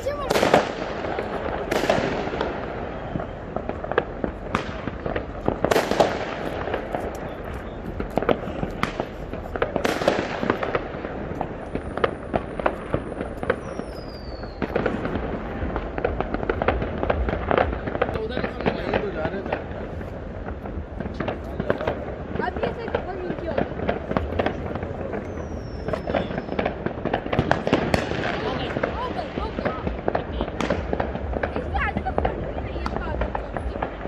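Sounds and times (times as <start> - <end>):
fireworks cracking and banging: 0.0 - 34.0
firework falling whistle: 11.7 - 15.0, 25.2 - 26.8.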